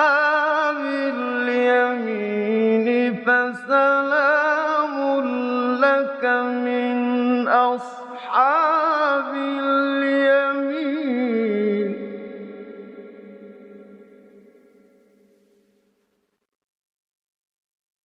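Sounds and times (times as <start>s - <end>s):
man reciting melodically: 0.0s - 12.8s.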